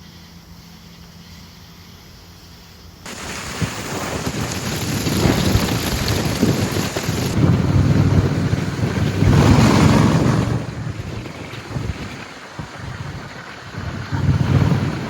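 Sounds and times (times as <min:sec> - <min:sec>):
motorcycle rumble: 0:03.1 - 0:15.0
wind on microphone: 0:03.1 - 0:15.0.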